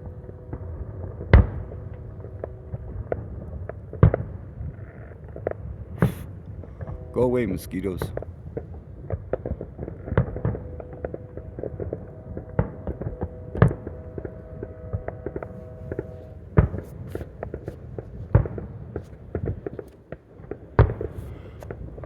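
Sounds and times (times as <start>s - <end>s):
fireworks popping and crackling: 1.1s - 14.6s, 15.2s - 22.0s
faint steady tone: 4.6s - 20.1s
loud firework bangs: 5.4s - 22.0s.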